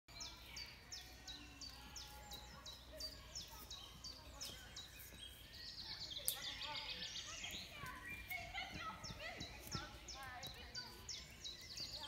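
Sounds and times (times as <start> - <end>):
faint birdsong: 0.1 - 12.0.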